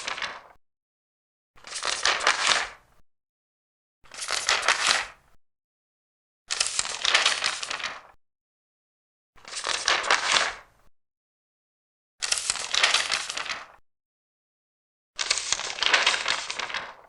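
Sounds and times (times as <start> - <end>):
paper pages turning: 0.0 - 0.6, 1.6 - 2.8, 6.5 - 8.2, 9.5 - 10.6, 12.2 - 13.8, 15.2 - 17.0.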